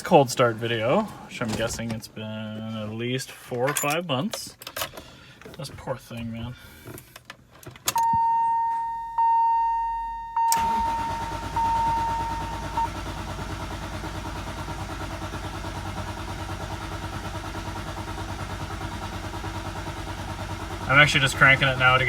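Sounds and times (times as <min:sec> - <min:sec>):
warning chime dings: 0:08.0 - 0:12.9
engine starter cranking: 0:10.5 - 0:22.0.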